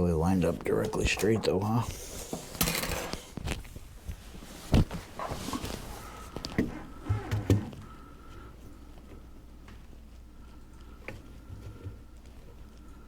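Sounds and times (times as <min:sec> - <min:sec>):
plastic pipe knocking and rustling: 0:03.4 - 0:05.8.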